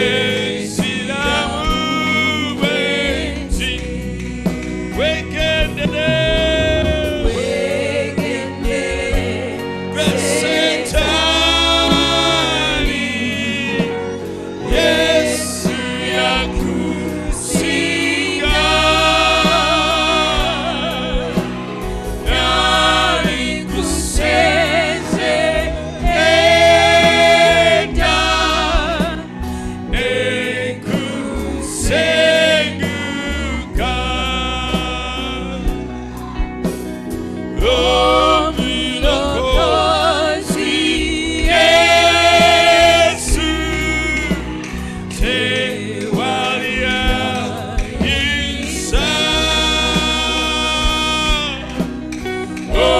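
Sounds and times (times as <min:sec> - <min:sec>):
bass and keyboard accompaniment: 0:00.0 - 0:52.9
group gospel singing: 0:00.0 - 0:52.9.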